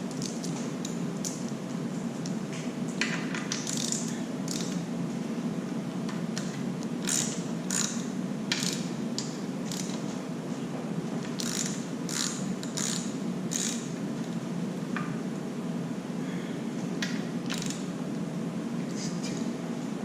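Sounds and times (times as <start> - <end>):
steady low hum: 0.0 - 20.0
ratchet wrench clicking: 3.5 - 4.8, 7.0 - 8.9, 9.7 - 10.0, 11.4 - 13.9, 17.5 - 17.9.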